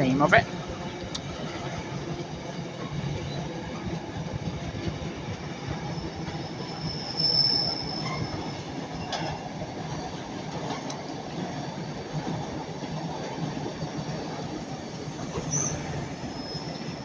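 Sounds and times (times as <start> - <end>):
high-pitched wheel squeal: 5.8 - 9.4, 15.3 - 17.0.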